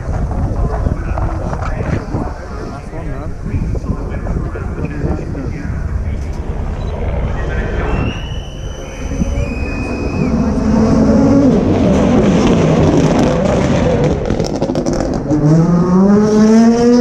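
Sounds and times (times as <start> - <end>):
rally car engine revving: 7.6 - 17.0.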